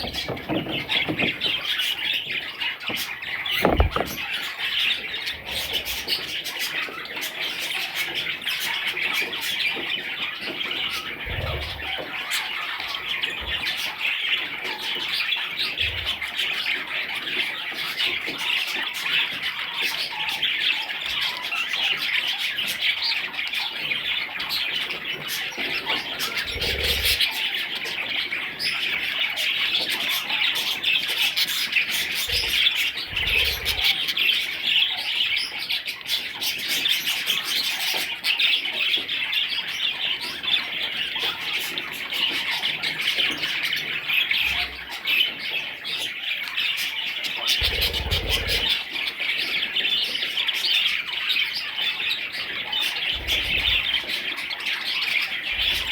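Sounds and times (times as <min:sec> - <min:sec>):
budgerigars chirping: 0:00.0 - 0:55.9
dull low bumps: 0:02.9 - 0:04.2.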